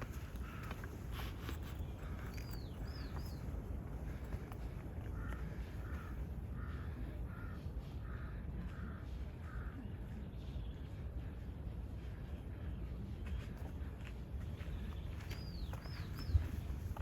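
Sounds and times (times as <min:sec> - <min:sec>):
crow cawing: 0:05.0 - 0:09.8.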